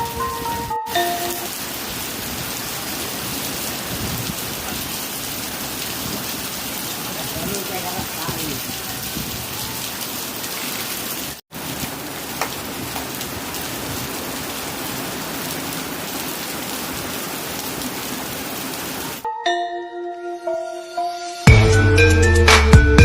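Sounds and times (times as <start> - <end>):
music with held tones: 0.0 - 1.6, 19.2 - 23.0
heavy rain falling: 0.0 - 19.2.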